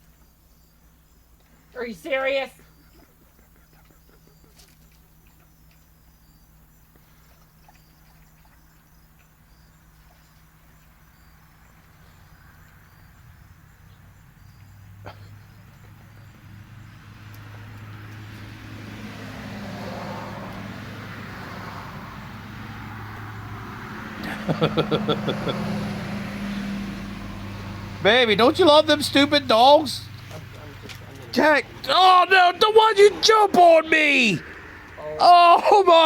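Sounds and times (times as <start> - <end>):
crickets chirring: 0.0 - 24.7
car engine approaching: 2.6 - 36.0.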